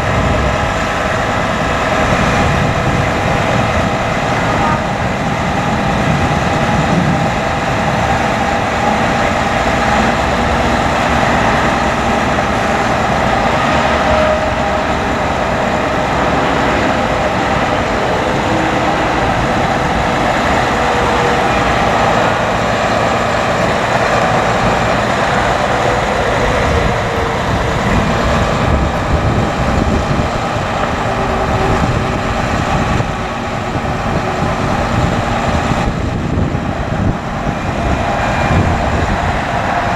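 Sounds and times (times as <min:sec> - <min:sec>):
diesel truck engine running: 0:00.0 - 0:39.9
hydraulic whining tones: 0:00.0 - 0:39.9.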